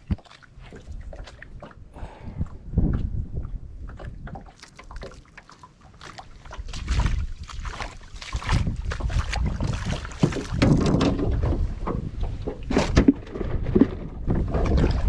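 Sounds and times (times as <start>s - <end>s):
wind buffeting microphone: 0.0s - 4.6s, 6.5s - 15.0s
deep rumble: 1.9s - 4.3s
handling knocks and rustles: 8.6s - 14.9s.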